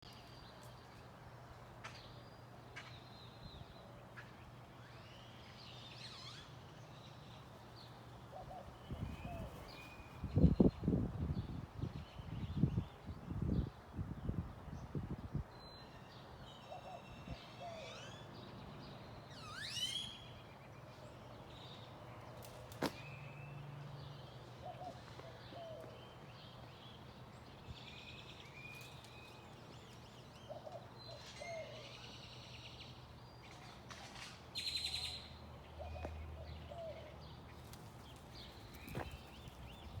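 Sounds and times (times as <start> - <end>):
birds chirping and calling: 37.6 - 40.0.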